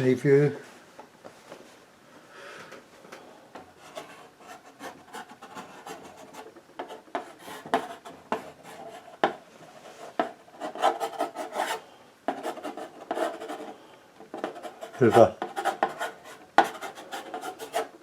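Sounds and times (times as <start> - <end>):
tool scratching painting surface: 3.8 - 18.0.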